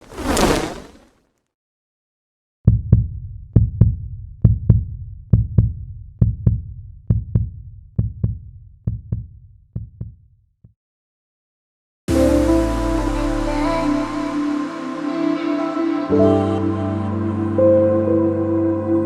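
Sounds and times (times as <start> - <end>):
heartbeat thumps: 3.6 - 10.2.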